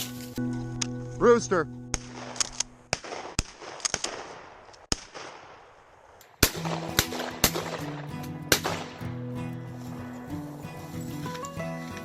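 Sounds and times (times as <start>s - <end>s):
background music: 0.0s - 3.3s, 6.4s - 12.0s
shotgun shots: 1.9s - 9.1s.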